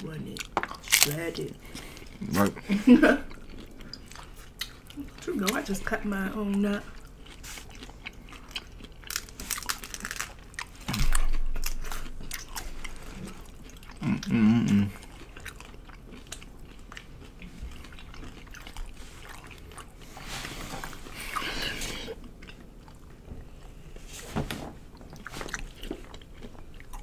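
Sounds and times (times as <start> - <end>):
crunching and chewing taco shells: 0.1 - 24.0, 24.9 - 27.0
mouth humming: 14.0 - 15.1.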